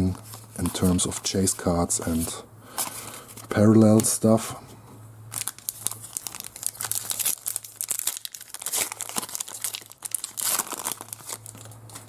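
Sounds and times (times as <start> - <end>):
card pack wrappers crinkling: 5.3 - 12.0.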